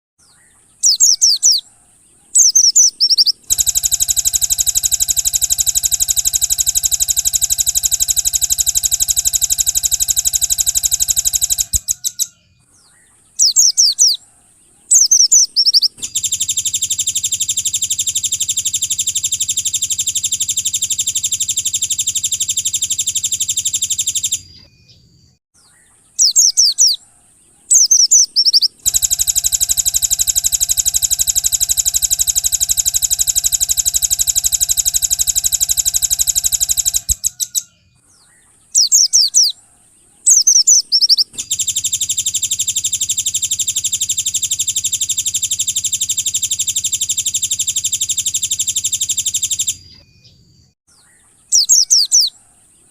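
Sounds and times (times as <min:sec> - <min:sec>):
descending bird chirps: 0:00.2 - 0:52.9
fast buzzing bird trills: 0:00.8 - 0:01.8, 0:02.4 - 0:12.3, 0:13.4 - 0:14.3, 0:14.9 - 0:24.5, 0:26.2 - 0:37.7, 0:38.7 - 0:39.6, 0:40.3 - 0:49.8, 0:51.5 - 0:52.6.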